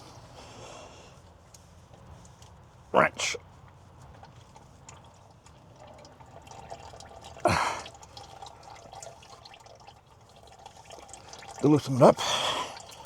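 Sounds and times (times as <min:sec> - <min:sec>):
oil dripping into a pan: 0:03.7 - 0:13.0.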